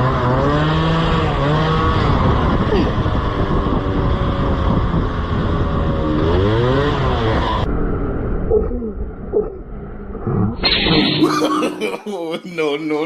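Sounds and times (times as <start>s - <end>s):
motorcycle engine running: 0.0s - 8.5s
wind noise: 0.0s - 11.9s.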